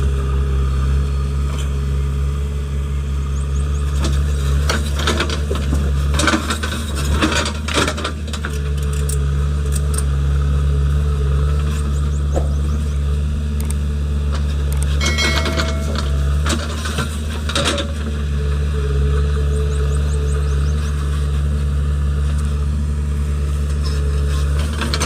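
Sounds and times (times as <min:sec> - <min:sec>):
heavy diesel engine running: 0:00.0 - 0:25.0
metal clanks from bucket: 0:15.0 - 0:18.0.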